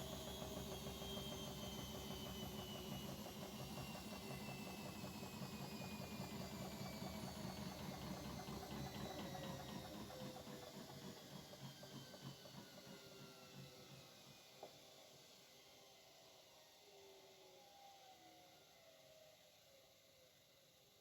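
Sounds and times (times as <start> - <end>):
washing machine motor whine slowing: 0.0 - 19.7.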